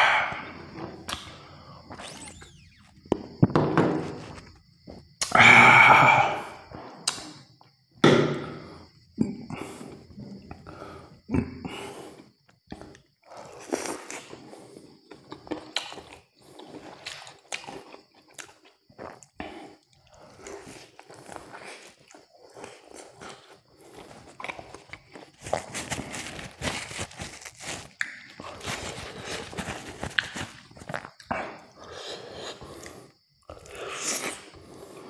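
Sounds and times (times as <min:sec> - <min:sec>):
crunchy fried chicken chewing: 0:12.7 - 0:31.4.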